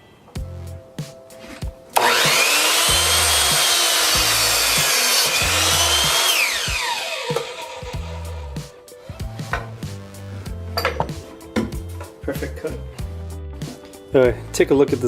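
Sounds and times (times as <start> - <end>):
background music with beat: 0.3 - 15.0
miter saw motor whine: 2.0 - 8.6
saw cutting through board: 2.0 - 9.2.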